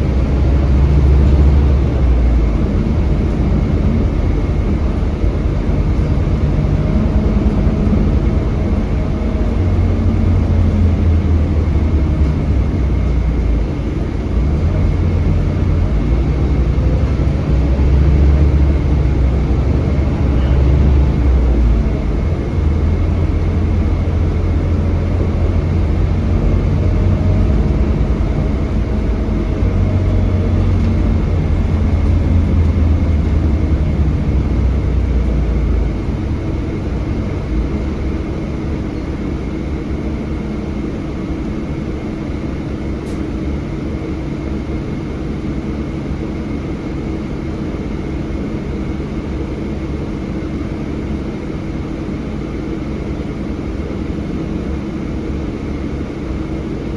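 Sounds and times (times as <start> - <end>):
bus diesel engine running: 0.0 - 56.9.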